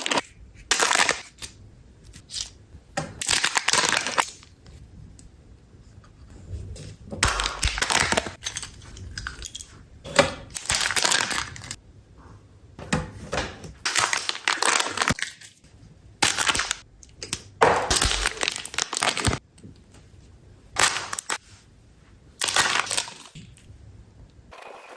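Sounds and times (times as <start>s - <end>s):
foil wrapper crinkling and tearing: 10.5s - 11.8s, 13.9s - 15.5s, 17.9s - 19.4s, 20.8s - 21.4s, 22.4s - 23.4s.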